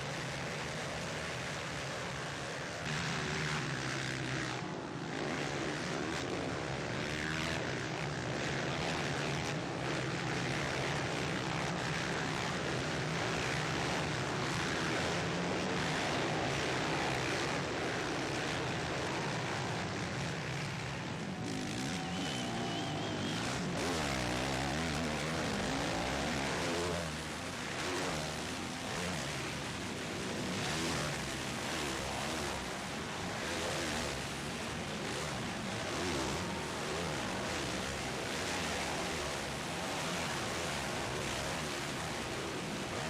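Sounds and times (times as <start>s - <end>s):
motocross bikes racing: 0.0s - 43.0s.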